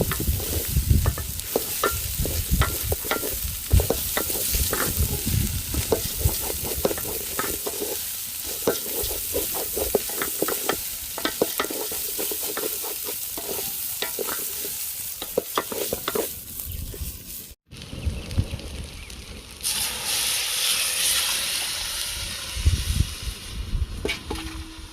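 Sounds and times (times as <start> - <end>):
spoon scraping against pot: 0.0 - 17.0
food sizzling in a pot: 0.0 - 17.6, 19.0 - 24.9.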